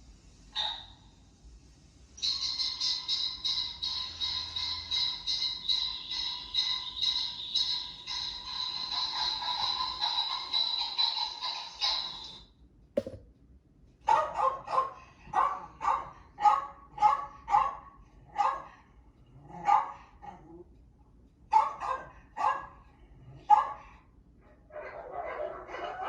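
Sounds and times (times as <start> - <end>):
dog barking: 14.1 - 18.7, 19.6 - 20.0, 21.5 - 22.8, 23.5 - 23.9, 24.7 - 26.0.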